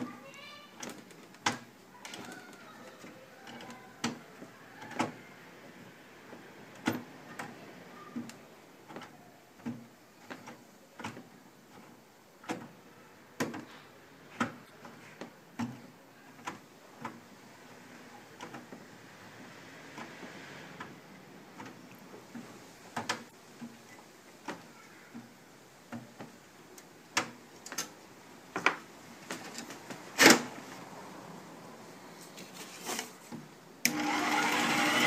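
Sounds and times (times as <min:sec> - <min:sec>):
faint background noise: 0:00.0 - 0:35.0
sharp clicks and light knocks: 0:20.8 - 0:25.3, 0:25.9 - 0:30.5.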